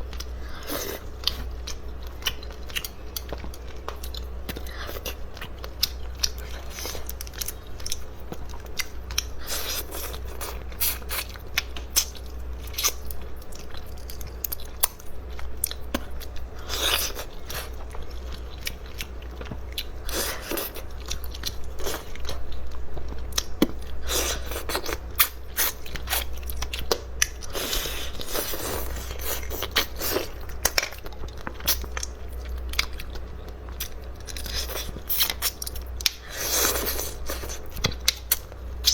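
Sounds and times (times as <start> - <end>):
chewing and crunching seafood: 0.0 - 38.9.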